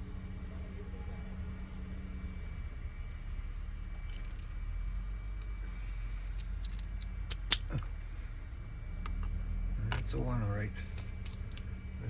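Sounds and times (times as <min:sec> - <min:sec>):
steady low hum: 0:00.0 - 0:12.0
metal lock parts clicking: 0:06.3 - 0:08.0, 0:10.9 - 0:11.7.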